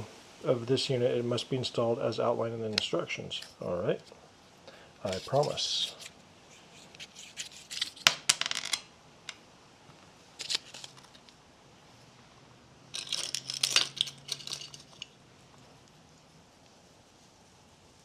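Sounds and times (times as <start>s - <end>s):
packaging rustling and tearing: 6.8s - 8.0s, 10.4s - 11.4s.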